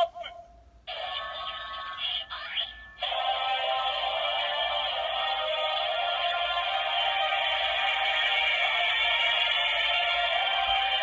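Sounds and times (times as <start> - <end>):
tinny music with singing: 2.2 - 11.0.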